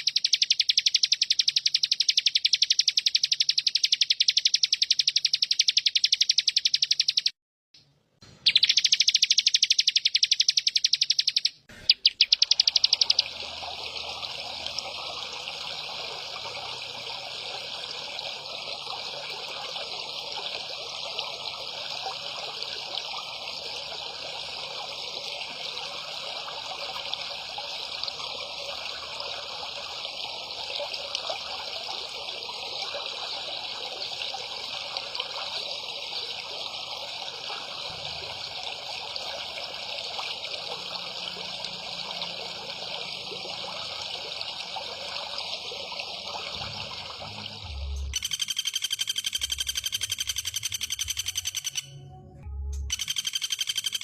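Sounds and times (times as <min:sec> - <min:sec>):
songbird trilling: 0:00.0 - 0:07.3, 0:08.4 - 0:13.4, 0:48.1 - 0:52.0, 0:52.8 - 0:54.0.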